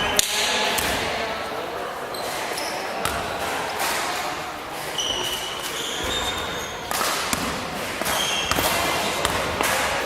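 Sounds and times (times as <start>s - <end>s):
sneakers squeaking on floor: 2.0s - 10.0s
basketball bouncing on court: 3.0s - 3.3s, 5.0s - 9.9s.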